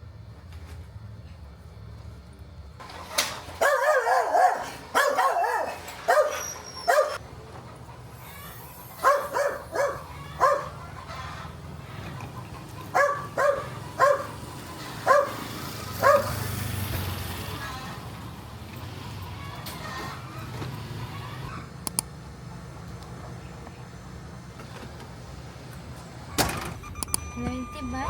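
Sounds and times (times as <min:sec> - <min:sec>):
dog barking: 0:03.6 - 0:07.2, 0:09.0 - 0:11.0, 0:12.8 - 0:16.5.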